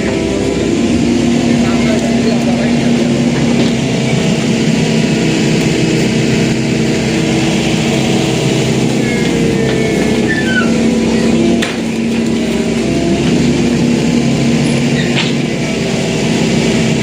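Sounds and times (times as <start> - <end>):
excavator diesel engine humming: 0.0 - 17.0
faint high whistling glides: 8.0 - 11.4.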